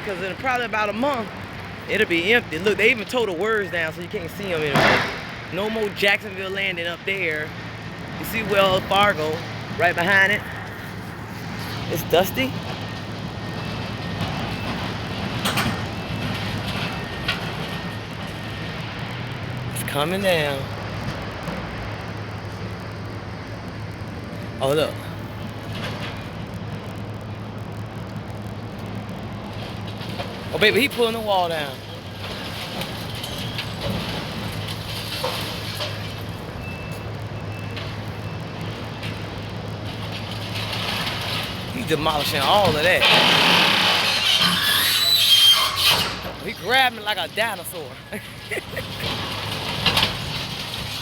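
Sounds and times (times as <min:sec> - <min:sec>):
demolition machinery engine drone: 0:00.0 - 0:51.0
debris breaking and crunching: 0:28.0 - 0:51.0.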